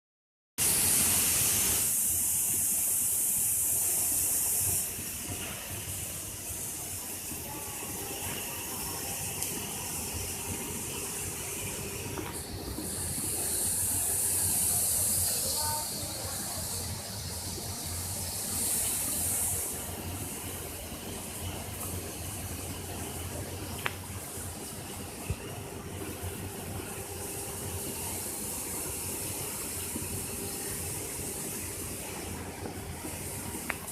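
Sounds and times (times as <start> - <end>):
loud high hiss: 0.6 - 21.2, 24.3 - 33.9.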